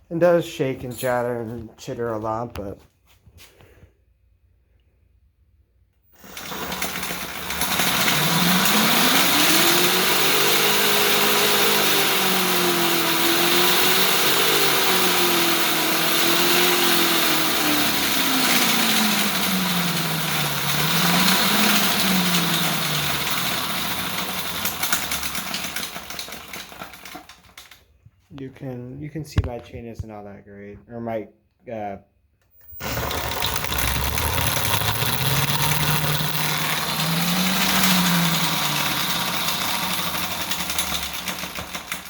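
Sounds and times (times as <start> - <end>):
electric motor whine: 6.2 - 23.9, 32.6 - 42.0
chain drive chattering rattle: 17.9 - 27.6, 32.8 - 42.0.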